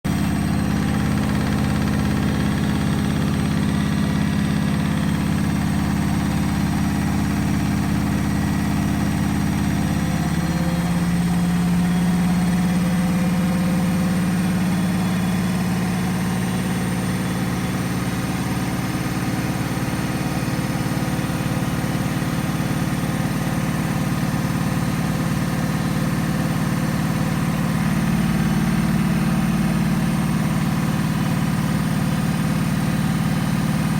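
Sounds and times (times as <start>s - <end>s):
washing machine spinning hum: 0.1s - 16.4s.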